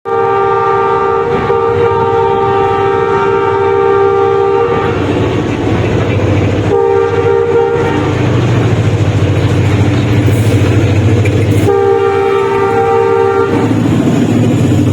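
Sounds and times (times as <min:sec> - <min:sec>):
passing train rumble: 0:00.0 - 0:14.9
train horn blasts: 0:00.1 - 0:05.3, 0:06.6 - 0:08.5, 0:11.5 - 0:14.2.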